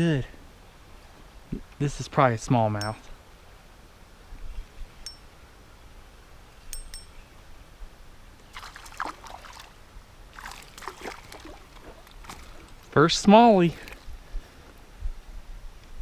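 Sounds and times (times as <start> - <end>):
water splashing: 8.5 - 12.8.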